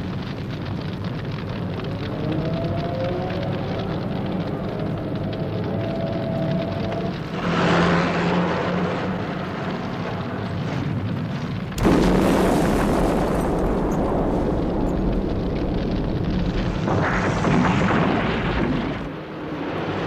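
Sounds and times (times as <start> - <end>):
fire rushing: 0.0 - 20.0
loud explosion with deep rumble: 9.7 - 19.8.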